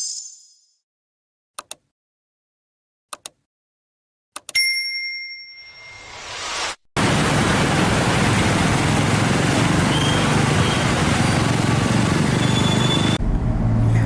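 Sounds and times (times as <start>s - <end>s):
outdoor noise: 6.2s - 14.0s
low engine hum: 7.0s - 14.0s.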